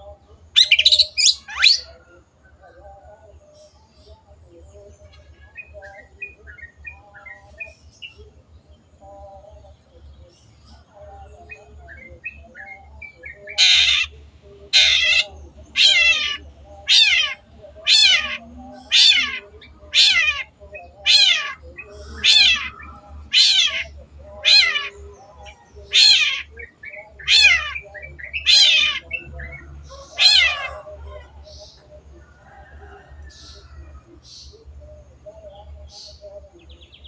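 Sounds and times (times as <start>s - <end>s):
faint bird chirps: 0.0s - 37.0s
bird harsh grating calls: 13.5s - 14.2s, 14.8s - 25.0s, 25.8s - 30.8s.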